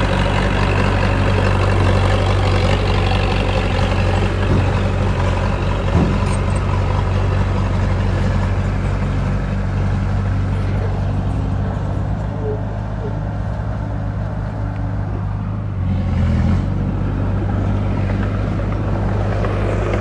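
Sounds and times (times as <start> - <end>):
diesel engine running under load: 0.0 - 20.0
clunk: 4.1 - 7.1.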